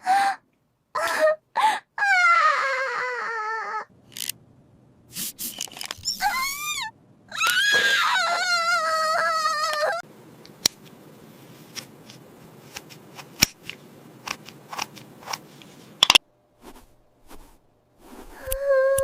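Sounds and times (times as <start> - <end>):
plastic toy pieces clicking: 4.1 - 4.4
faint hiss: 5.1 - 5.7.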